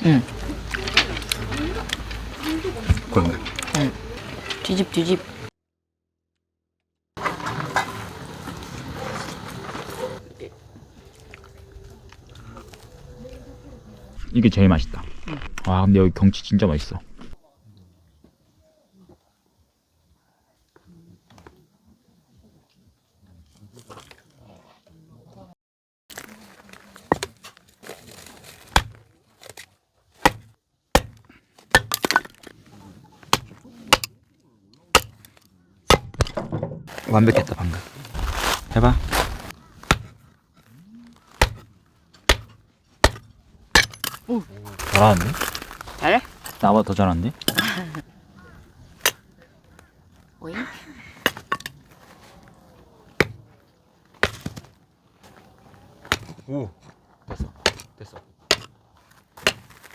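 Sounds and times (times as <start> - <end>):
wood cracking: 0.0 - 5.5, 26.1 - 32.6, 34.9 - 36.3, 36.9 - 40.3, 41.0 - 49.3, 54.1 - 54.8, 58.5 - 59.9
axe striking firewood: 26.2 - 32.5, 33.2 - 34.2, 34.9 - 37.1, 37.8 - 40.2, 41.3 - 46.7, 47.4 - 48.0, 49.0 - 49.2, 51.2 - 52.0, 53.2 - 53.5, 54.1 - 54.8, 56.0 - 56.4, 57.3 - 57.9, 58.5 - 58.8, 59.4 - 59.9.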